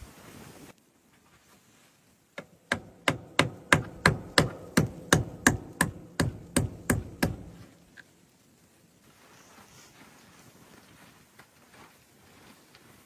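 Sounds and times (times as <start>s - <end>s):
hard hammer-like knocks: 2.4s - 7.7s.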